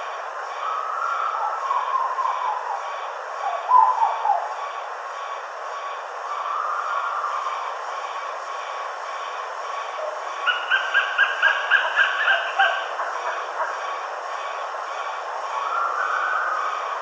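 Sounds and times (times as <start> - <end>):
bird whistled calls: 0.6 - 2.9, 3.5 - 4.5, 6.4 - 7.4, 10.5 - 13.4, 15.6 - 16.8.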